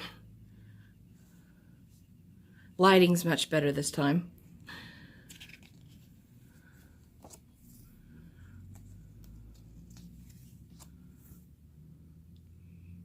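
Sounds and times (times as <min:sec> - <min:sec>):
paper pages rustling: 0:05.3 - 0:07.9, 0:08.6 - 0:11.4
light clicks of pages: 0:07.1 - 0:07.8, 0:08.6 - 0:11.2.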